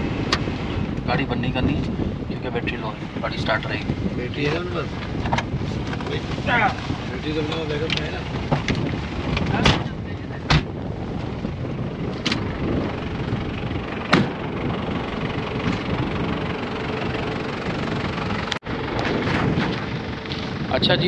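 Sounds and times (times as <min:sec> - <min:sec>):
suv engine idling: 0:00.0 - 0:21.0.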